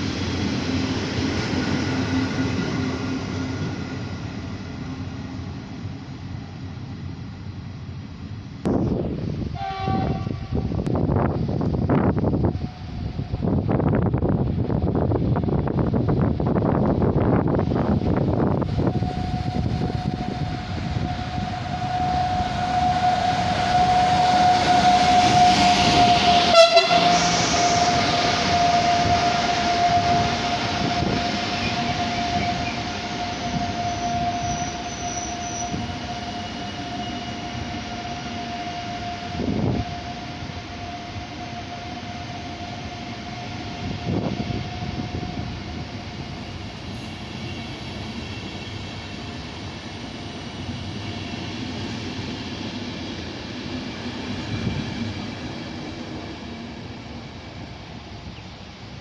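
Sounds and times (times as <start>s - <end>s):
high locomotive tone: 0.0s - 59.0s
train wheels rumbling on rails: 0.0s - 59.0s.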